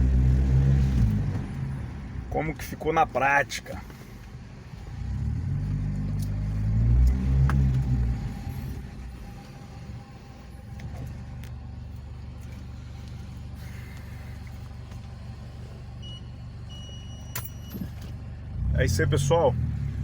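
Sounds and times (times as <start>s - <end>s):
car engine low rumble: 0.0s - 20.0s
faint high beep: 16.0s - 18.1s.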